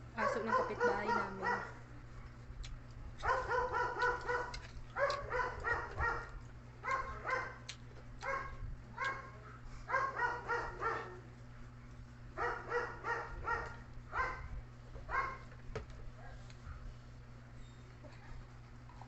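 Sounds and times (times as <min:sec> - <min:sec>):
steady low hum: 0:00.0 - 0:19.0
small dog yapping: 0:03.2 - 0:06.3.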